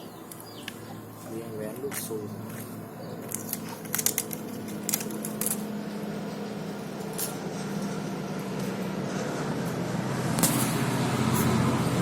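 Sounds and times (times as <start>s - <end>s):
steady low hum: 0.0s - 12.0s
small metal parts clinking: 1.9s - 5.7s.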